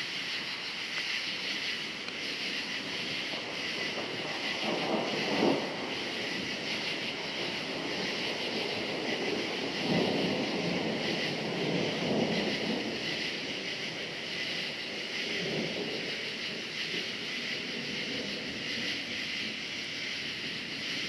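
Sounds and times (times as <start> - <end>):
crickets trilling: 0.0 - 21.0
distant thunder rumbling: 1.7 - 19.1.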